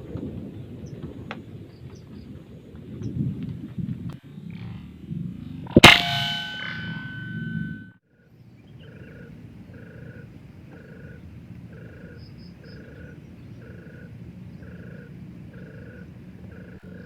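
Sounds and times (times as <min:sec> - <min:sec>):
low background rumble: 0:00.0 - 0:17.0
pulsing animal call: 0:08.2 - 0:17.0.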